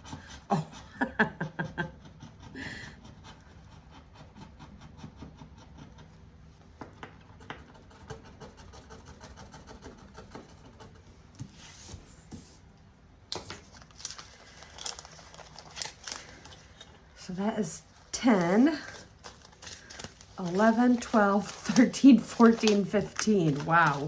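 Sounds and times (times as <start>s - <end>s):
paper rustle: 13.3s - 17.0s, 18.3s - 24.0s.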